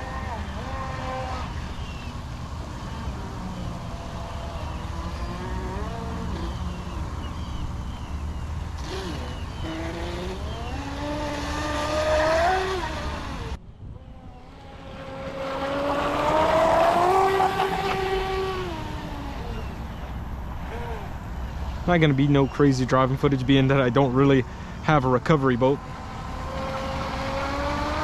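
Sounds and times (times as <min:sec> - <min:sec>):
rc boat motor whining: 0:00.0 - 0:28.0
water and hull noise: 0:12.2 - 0:28.0.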